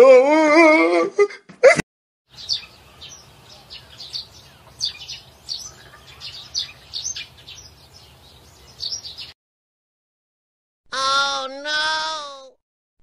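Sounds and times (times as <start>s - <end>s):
small birds chirping: 2.3s - 9.4s.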